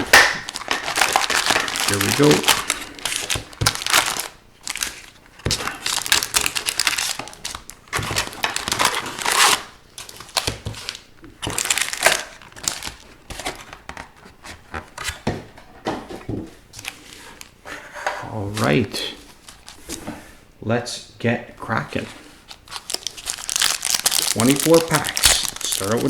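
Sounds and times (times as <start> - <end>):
plastic wrapping crinkling and tearing: 0.0 - 14.2, 19.3 - 19.9, 22.3 - 26.0.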